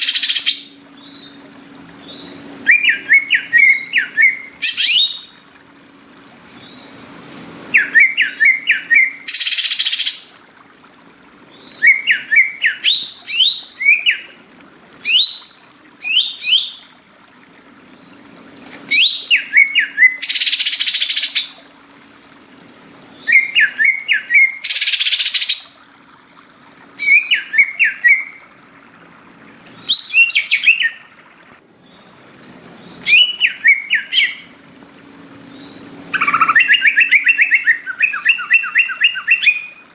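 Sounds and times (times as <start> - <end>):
bird chirping whistles: 2.0 - 5.4, 7.7 - 10.2, 11.6 - 14.4, 15.0 - 16.8, 18.9 - 21.6, 23.2 - 25.7, 27.0 - 28.4, 29.8 - 31.1, 33.0 - 34.5, 35.6 - 39.8
harsh rasping bird call: 36.1 - 39.7.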